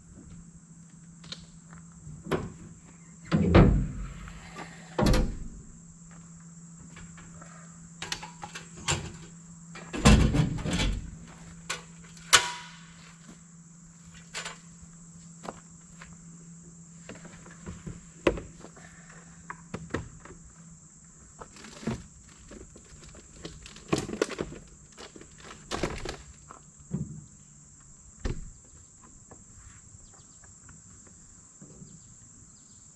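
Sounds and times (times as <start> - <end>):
insect drone: 0.0 - 32.9
truck doors opening and closing: 2.0 - 5.7, 8.0 - 13.0.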